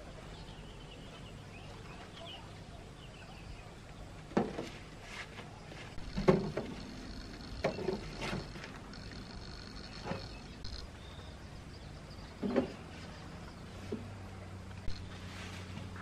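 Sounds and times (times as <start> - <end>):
steady high hum: 5.5 - 16.0
faint chirps: 5.6 - 13.8
knocks and thuds: 6.0 - 6.9.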